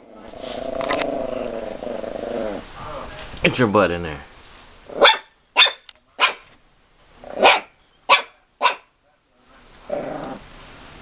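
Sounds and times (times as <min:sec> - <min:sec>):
dog barking: 0:05.0 - 0:06.5, 0:07.4 - 0:08.9.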